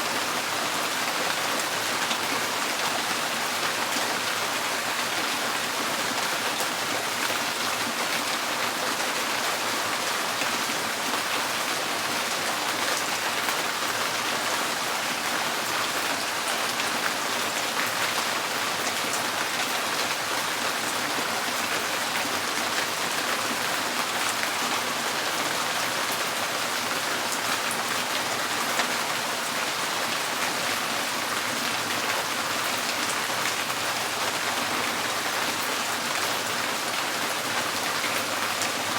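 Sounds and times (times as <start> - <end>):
rain on a tin roof: 0.0 - 38.9.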